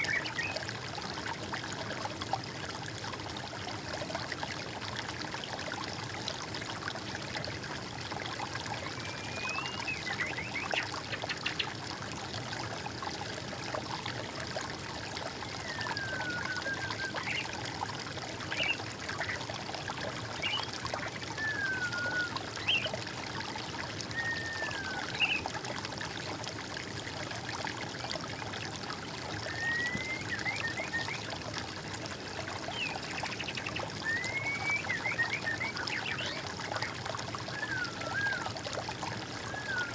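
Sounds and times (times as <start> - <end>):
water trickling: 0.0 - 39.9
songbird whistled notes: 9.1 - 10.5, 21.4 - 22.9, 24.1 - 25.4, 29.5 - 31.2, 34.1 - 36.3.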